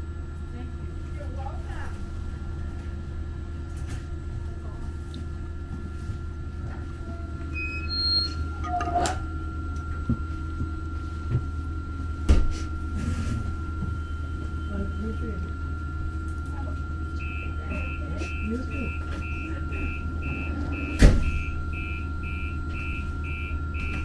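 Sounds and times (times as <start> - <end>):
light rail car hum: 0.0 - 24.0.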